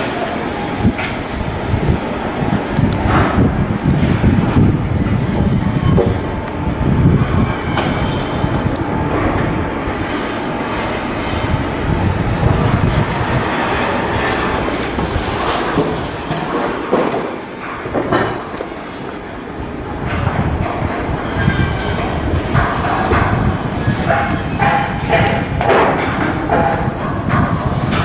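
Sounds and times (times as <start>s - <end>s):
heavy machinery din: 0.0s - 16.7s, 20.0s - 28.0s.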